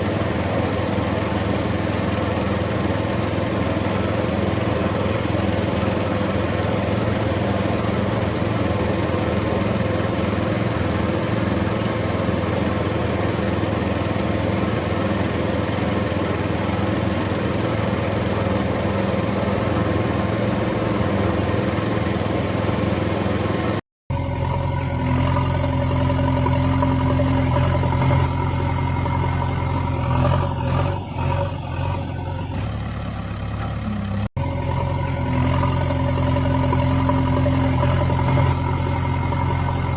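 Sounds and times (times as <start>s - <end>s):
deep engine-like hum: 0.0s - 39.9s
motor running steadily: 33.8s - 39.9s.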